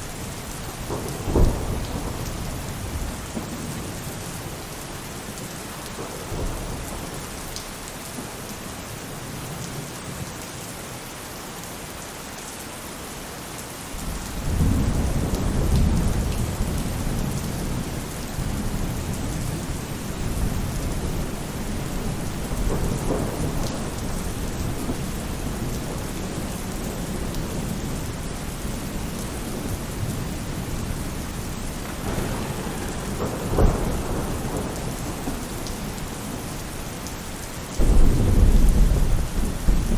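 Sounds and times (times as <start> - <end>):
rain on a roof: 0.0 - 39.9
low thunder rumble: 0.1 - 7.5, 14.0 - 39.9
thunder clap: 0.6 - 4.4, 14.4 - 31.0, 31.6 - 37.2, 37.8 - 39.9.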